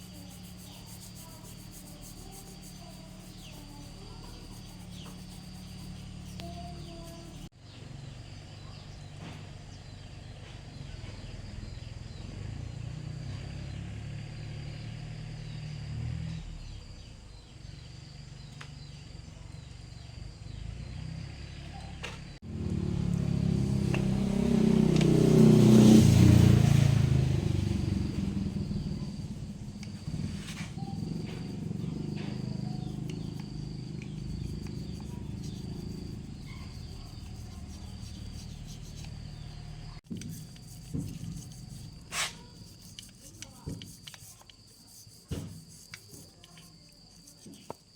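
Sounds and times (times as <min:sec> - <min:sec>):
insects droning: 0:00.0 - 0:47.9
engine running: 0:20.6 - 0:43.1.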